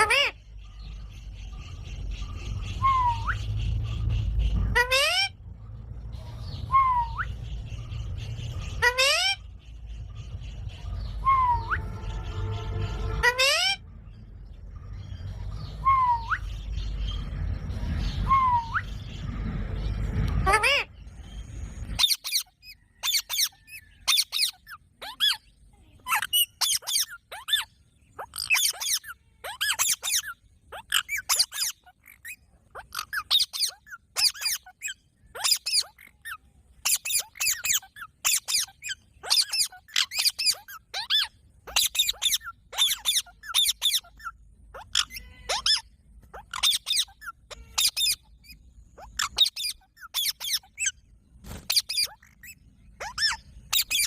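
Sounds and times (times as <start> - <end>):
parrot squeaky calls: 0.0 - 0.8, 1.7 - 5.5, 6.4 - 9.6, 10.3 - 12.2, 13.0 - 13.8, 20.4 - 21.0, 21.9 - 51.0, 51.6 - 54.0.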